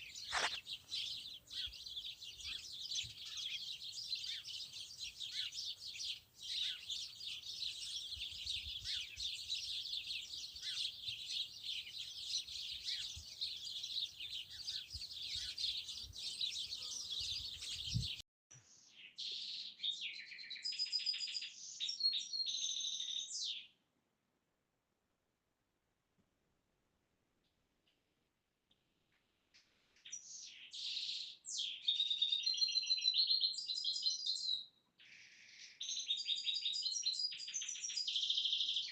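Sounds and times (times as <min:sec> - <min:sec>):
songbirds chirping: 0:00.0 - 0:23.8, 0:28.7 - 0:38.9
whistled birdsong: 0:00.0 - 0:23.8, 0:30.0 - 0:38.9.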